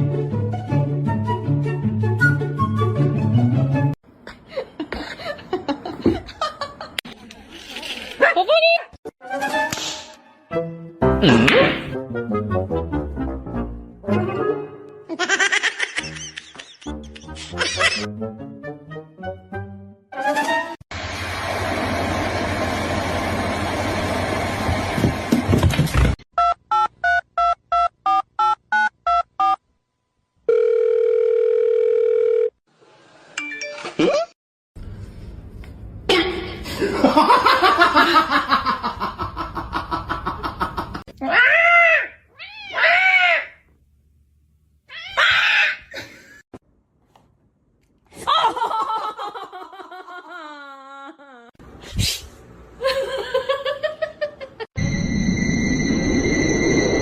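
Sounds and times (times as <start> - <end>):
person laughing: 11.2 - 11.9, 15.1 - 18.1, 33.8 - 34.3, 45.9 - 46.4, 48.2 - 51.6
steady telephone tone: 30.5 - 32.6.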